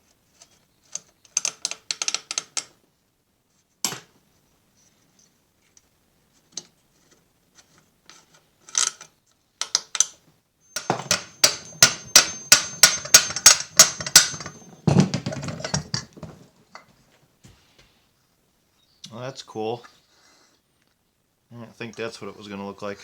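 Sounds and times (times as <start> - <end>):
hammer tapping on metal: 10.8 - 16.0
metal clattering: 10.8 - 16.5.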